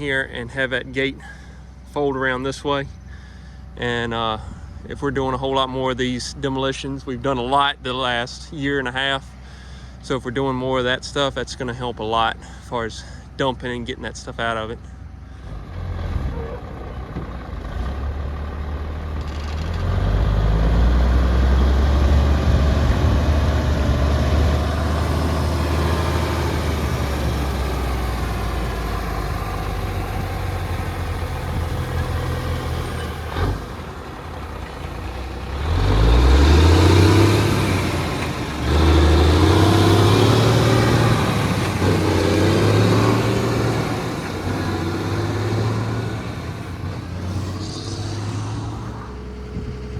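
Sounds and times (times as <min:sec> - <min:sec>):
truck engine accelerating: 0:15.3 - 0:49.9.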